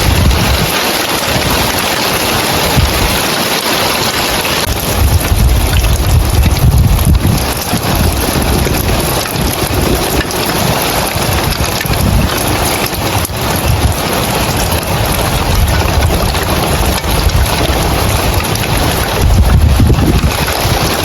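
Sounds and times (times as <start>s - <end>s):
rain on roof tiles: 0.0s - 21.0s
wind rumbling on microphone: 0.0s - 21.0s.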